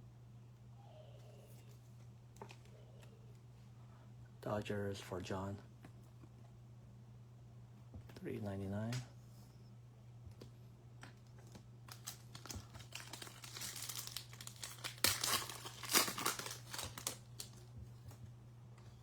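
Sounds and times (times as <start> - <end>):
steady low hum: 0.0 - 19.0
cards rustling: 11.1 - 17.7
foil wrapper tearing and crinkling: 11.4 - 17.6.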